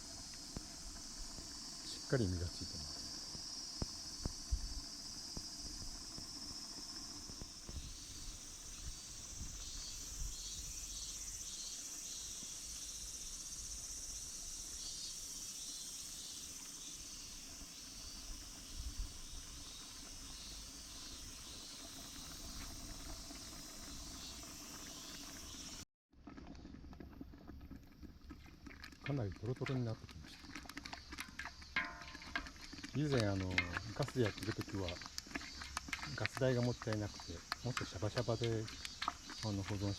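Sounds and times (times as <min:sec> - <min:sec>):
insect chirps: 0:00.0 - 0:25.8, 0:28.8 - 0:39.9
insect high buzz: 0:00.0 - 0:25.8.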